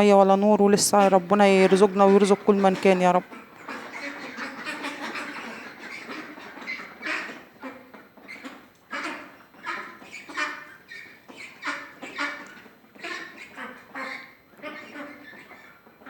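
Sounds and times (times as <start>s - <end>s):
ducks quacking: 0.0s - 16.0s.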